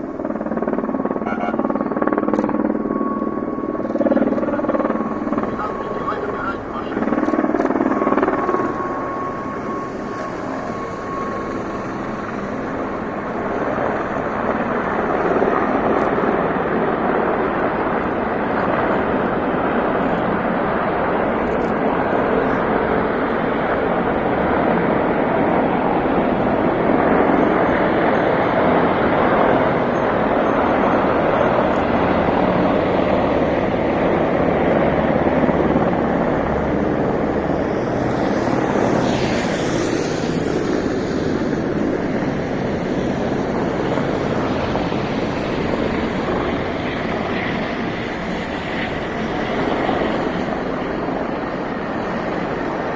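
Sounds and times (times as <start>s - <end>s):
military aircraft engine rumble: 0.0s - 52.9s.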